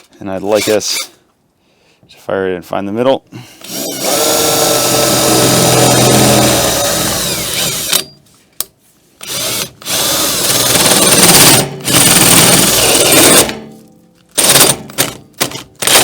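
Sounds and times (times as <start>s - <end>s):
power drill boring into metal: 3.6s - 8.1s, 9.2s - 13.5s.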